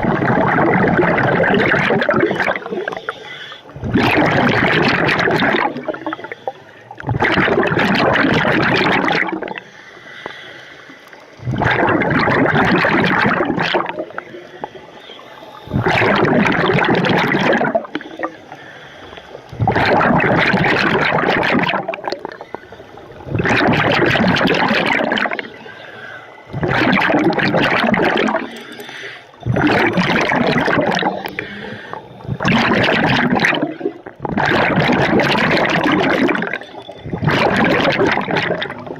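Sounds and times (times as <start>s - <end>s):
exhaled bubbles rushing: 0.0s - 9.7s, 11.1s - 18.6s, 19.4s - 38.9s
regulator hissing inhale: 2.6s - 3.8s, 5.9s - 7.0s, 9.6s - 11.4s, 14.2s - 15.8s, 17.9s - 19.5s, 25.5s - 26.5s, 28.5s - 29.4s, 31.2s - 32.4s.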